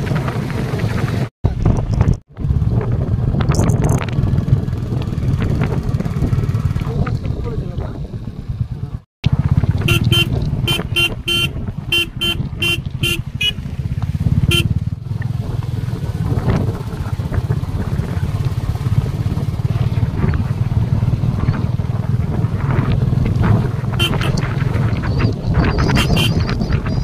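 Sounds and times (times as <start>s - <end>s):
motorcycle engine running: 0.0s - 27.0s
motorcycle horn toots: 9.8s - 13.7s, 14.4s - 14.8s, 24.0s - 24.5s, 25.9s - 26.5s.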